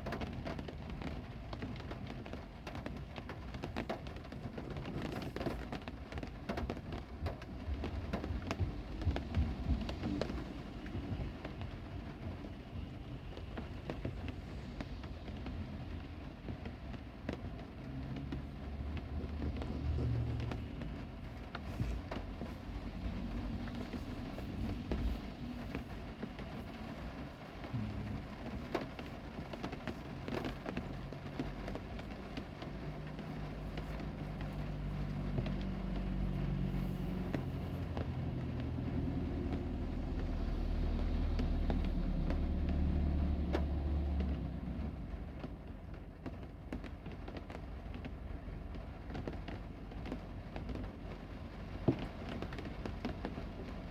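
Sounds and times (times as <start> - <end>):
heavy rain falling: 0.0 - 53.9
raindrops ticking: 0.0 - 53.9
low rumble: 17.5 - 45.5.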